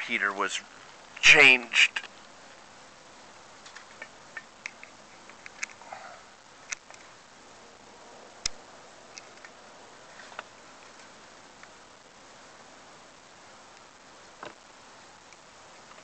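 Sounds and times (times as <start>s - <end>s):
steady low hiss: 0.0s - 16.0s
light clicks and ticks: 3.6s - 5.8s.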